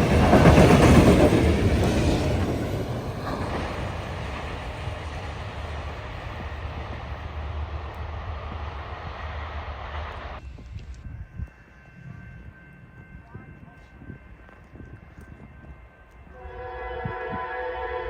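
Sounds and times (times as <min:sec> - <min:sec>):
freight train rolling past: 0:00.0 - 0:18.0.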